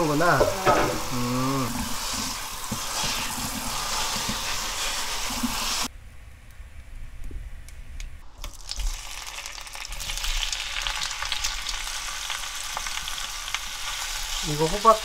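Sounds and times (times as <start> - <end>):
squash slices sizzling in hot oil: 0.0 - 5.9, 8.4 - 15.0.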